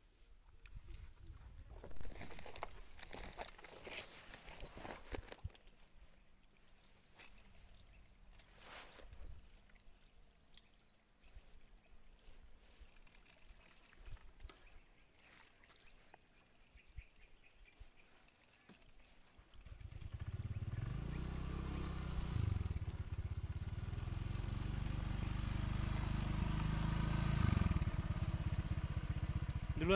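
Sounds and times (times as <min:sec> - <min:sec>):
faint short chirps: 0:06.9 - 0:09.5, 0:21.8 - 0:22.4.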